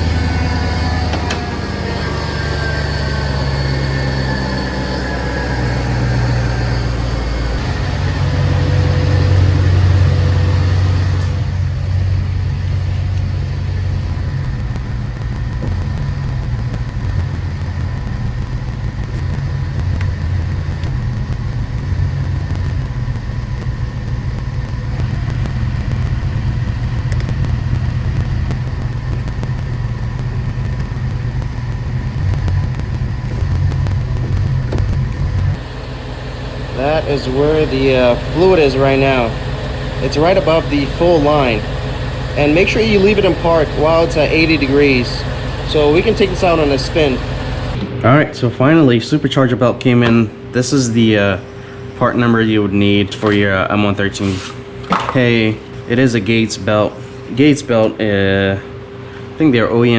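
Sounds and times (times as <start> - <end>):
engine idling: 0.0 - 47.8
supercharger whine: 0.0 - 59.9.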